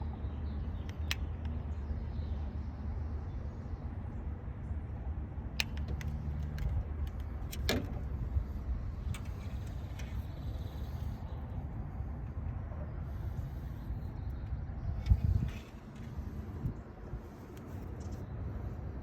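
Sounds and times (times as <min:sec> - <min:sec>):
sharp clicks: 0:00.8 - 0:01.6, 0:05.5 - 0:07.9.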